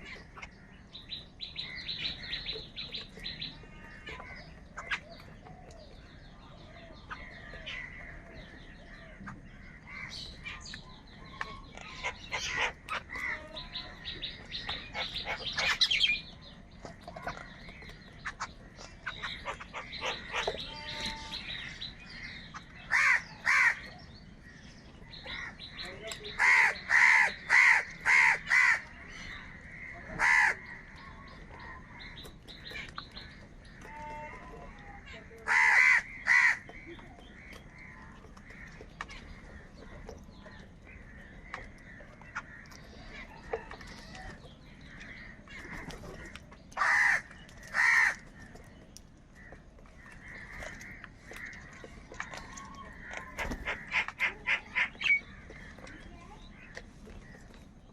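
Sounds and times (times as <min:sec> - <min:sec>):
faint bird calls: 0:00.0 - 0:57.9
crows cawing: 0:07.1 - 0:10.7, 0:19.0 - 0:24.0, 0:26.3 - 0:31.0, 0:35.4 - 0:36.8, 0:44.9 - 0:48.7, 0:49.4 - 0:55.7
crow cawing loudly: 0:22.9 - 0:23.8, 0:26.3 - 0:28.9, 0:30.1 - 0:30.7, 0:35.4 - 0:36.6, 0:46.8 - 0:48.2.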